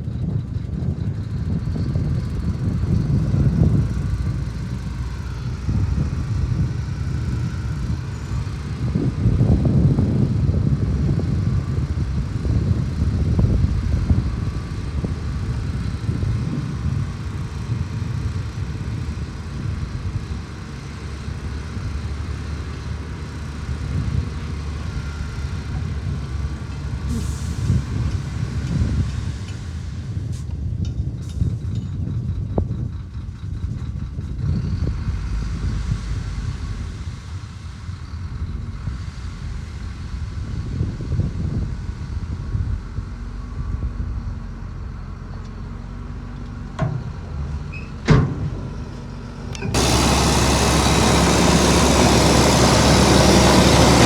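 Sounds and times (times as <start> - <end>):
heavy diesel engines rumbling: 0.0 - 54.0.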